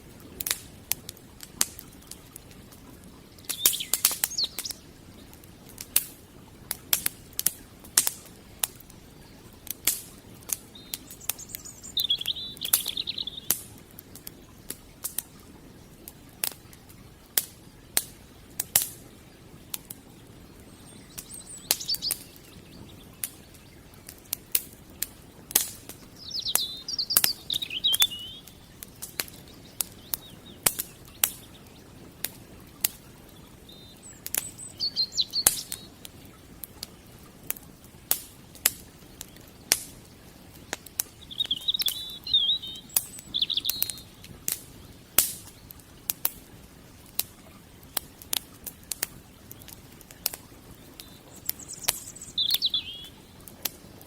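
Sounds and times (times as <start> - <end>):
wood fire crackling: 0.0 - 54.0
birds chirping: 1.3 - 5.6, 8.8 - 14.7, 20.1 - 37.4, 38.8 - 45.8, 49.2 - 54.0.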